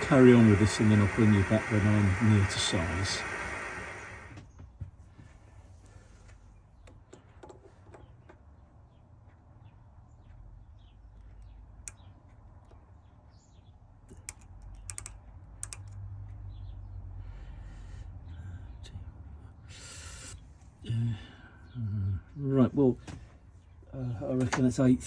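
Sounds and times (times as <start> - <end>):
machine tool humming: 0.0 - 4.4
light clicks and ticks: 14.1 - 16.5.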